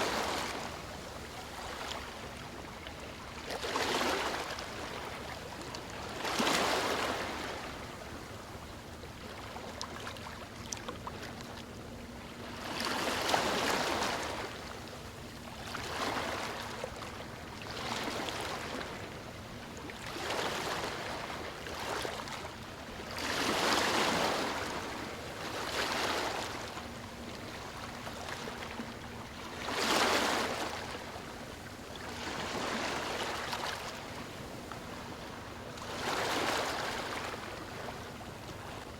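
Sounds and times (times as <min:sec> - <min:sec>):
ocean waves lapping on shore: 0:00.0 - 0:38.9.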